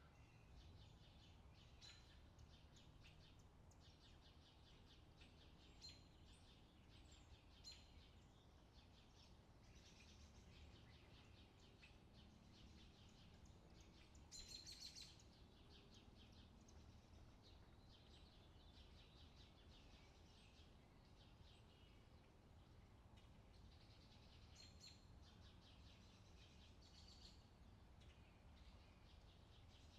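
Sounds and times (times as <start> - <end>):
small birds chirping: 0.0 - 29.9.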